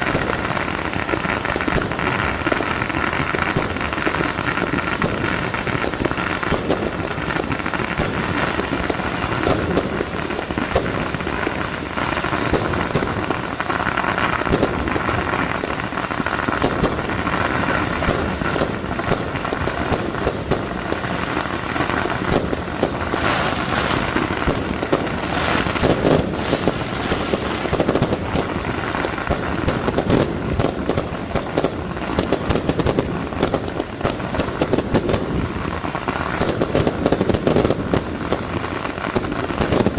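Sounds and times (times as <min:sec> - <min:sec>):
firecrackers popping rapidly: 0:00.0 - 0:39.9.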